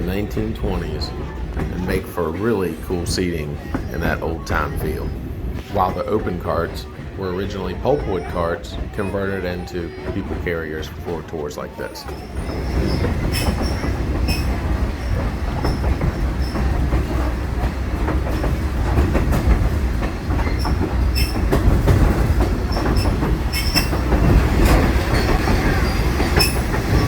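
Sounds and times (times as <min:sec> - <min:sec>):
rail clacks: 0:00.0 - 0:27.0
train wheels rumbling on rail: 0:00.0 - 0:27.0
wheel squeals: 0:11.8 - 0:17.3, 0:20.3 - 0:27.0.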